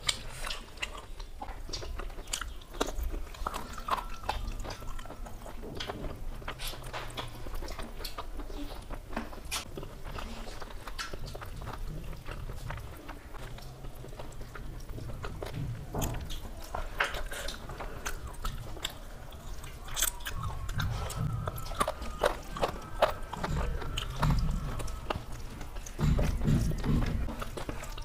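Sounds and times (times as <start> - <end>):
people chewing and biting: 0.0 - 28.0
wet mouth clicks: 16.0 - 28.0.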